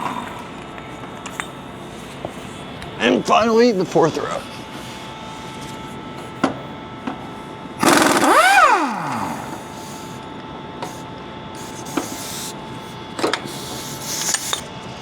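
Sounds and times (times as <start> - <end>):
power tool motor spinning: 7.8 - 10.2.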